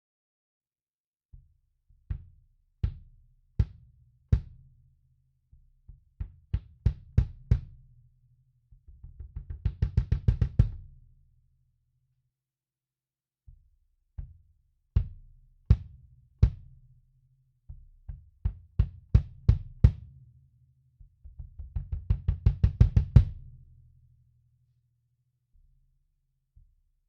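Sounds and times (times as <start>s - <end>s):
kick drum thumps: 5.9s - 7.9s, 8.9s - 10.9s, 17.7s - 20.2s, 21.1s - 23.5s.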